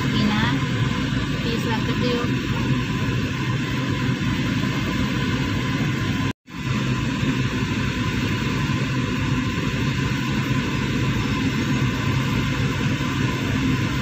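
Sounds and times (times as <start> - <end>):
air-conditioning fan: 0.0 - 14.0.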